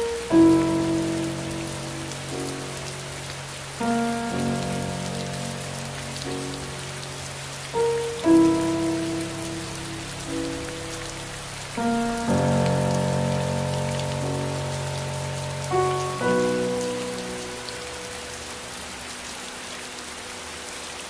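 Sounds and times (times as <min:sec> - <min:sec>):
soft music chords: 0:00.0 - 0:18.5
rain falling: 0:00.0 - 0:21.0.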